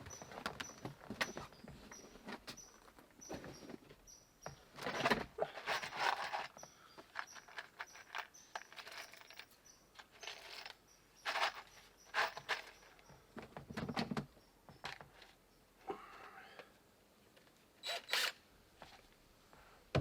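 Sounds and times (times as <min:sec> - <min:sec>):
rustling: 0:04.6 - 0:13.3.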